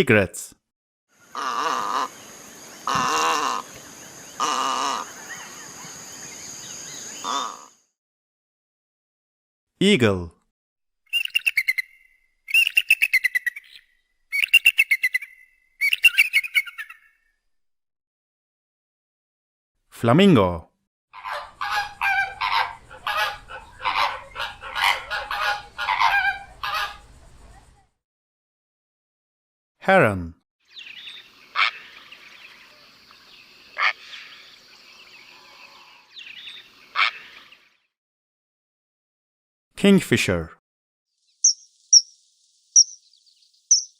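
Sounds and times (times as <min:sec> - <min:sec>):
birds chirping faintly: 0:01.2 - 0:07.8, 0:21.3 - 0:27.9, 0:30.7 - 0:37.9, 0:41.2 - 0:43.9
heron calling: 0:01.2 - 0:07.8, 0:11.1 - 0:17.1, 0:21.2 - 0:27.2, 0:30.8 - 0:32.6, 0:41.4 - 0:42.2, 0:42.8 - 0:43.9
eagle chittering: 0:21.2 - 0:27.1, 0:41.4 - 0:42.2, 0:42.8 - 0:43.9.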